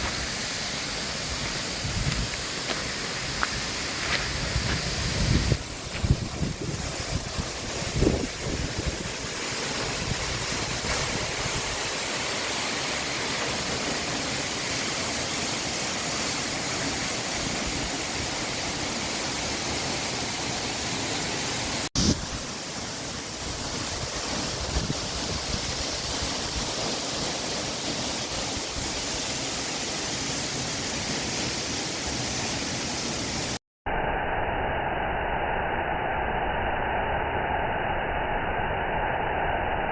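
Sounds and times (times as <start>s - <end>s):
waterfall roaring: 0.0s - 21.8s
dull muffled noise: 1.4s - 11.9s, 33.9s - 39.9s.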